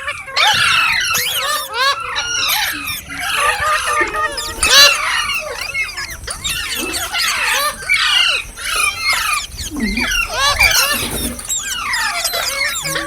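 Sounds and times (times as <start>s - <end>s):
parrots chirping and squawking: 0.0s - 13.0s.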